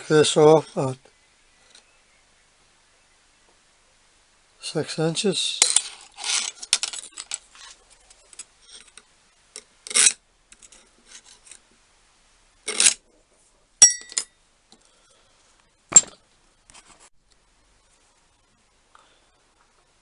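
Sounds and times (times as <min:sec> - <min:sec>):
metal clink ringing: 0:13.8 - 0:14.3.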